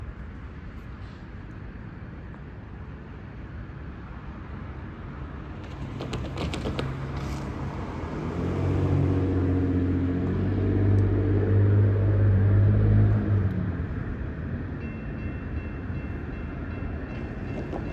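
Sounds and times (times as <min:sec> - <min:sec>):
locomotive engine drone: 0:07.3 - 0:17.9
train rumble: 0:13.0 - 0:17.9.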